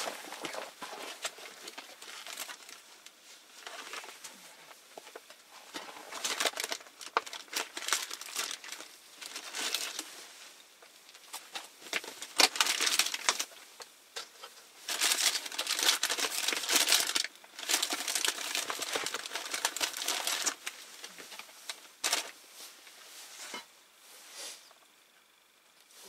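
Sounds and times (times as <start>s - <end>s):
rustling and crinkling: 0.0s - 26.0s.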